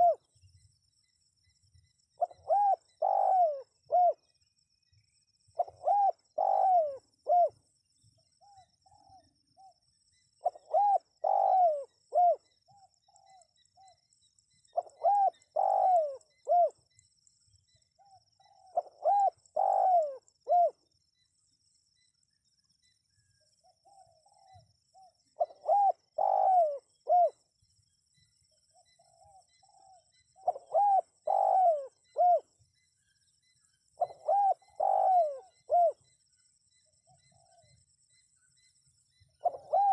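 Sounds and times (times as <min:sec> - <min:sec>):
dove cooing: 0:00.0 - 0:00.3, 0:02.2 - 0:04.3, 0:05.6 - 0:07.6, 0:10.4 - 0:14.0, 0:14.7 - 0:16.8, 0:18.0 - 0:20.8, 0:23.6 - 0:27.4, 0:28.7 - 0:32.5, 0:34.0 - 0:36.1, 0:39.4 - 0:39.9.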